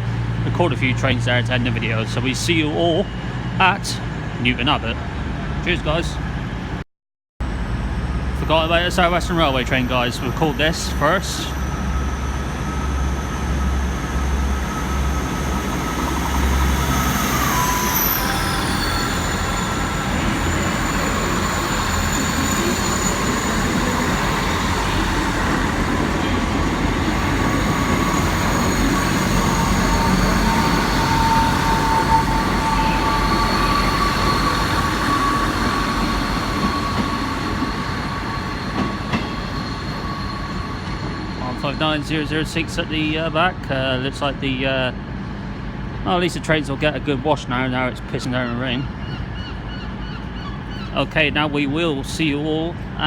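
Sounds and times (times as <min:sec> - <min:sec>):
diesel train rumbling: 0:00.0 - 0:06.8, 0:07.4 - 0:53.0
wheels squealing: 0:09.6 - 0:42.4.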